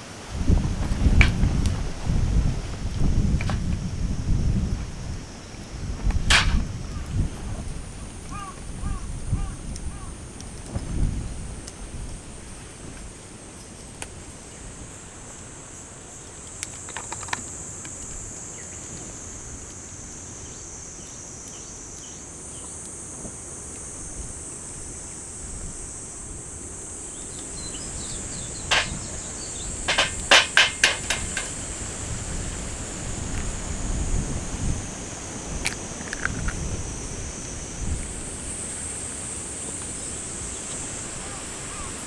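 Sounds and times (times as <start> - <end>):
low wind rumble: 0.0 - 12.2, 27.5 - 39.0
sharp knocks: 6.3 - 6.7, 28.7 - 29.2, 29.9 - 31.6.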